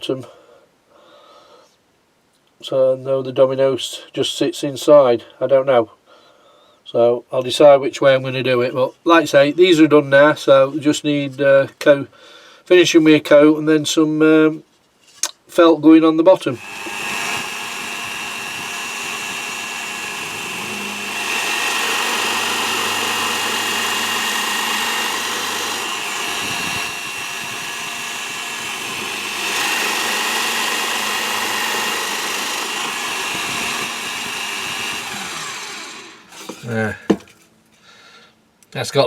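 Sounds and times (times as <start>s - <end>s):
electric wood router whining: 16.5s - 37.4s.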